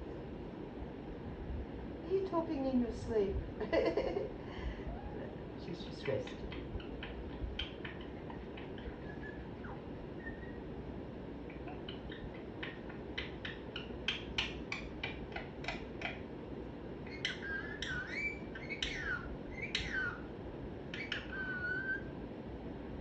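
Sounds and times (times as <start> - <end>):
parrot chirping calls: 4.9 - 16.4, 17.0 - 22.2.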